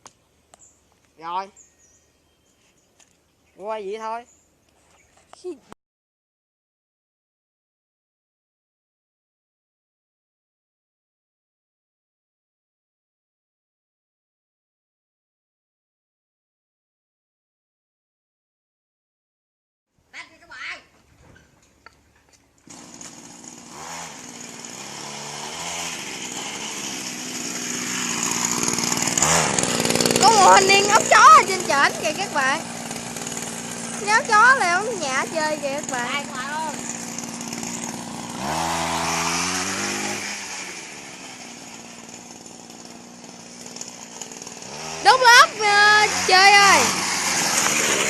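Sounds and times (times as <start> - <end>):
two-stroke engine running: 22.6 - 48.0.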